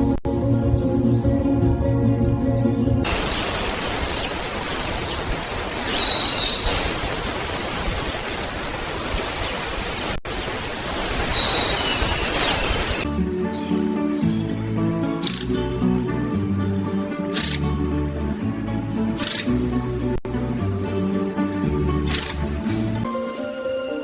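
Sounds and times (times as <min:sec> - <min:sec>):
rain hiss: 0:03.0 - 0:13.0
high bird chirps: 0:03.1 - 0:08.4, 0:10.8 - 0:13.0
soft background music: 0:13.0 - 0:24.0.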